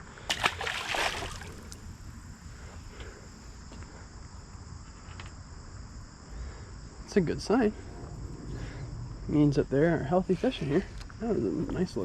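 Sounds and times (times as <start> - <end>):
insects chirring: 0.0 - 12.0
wind rumble on microphone: 7.0 - 10.8.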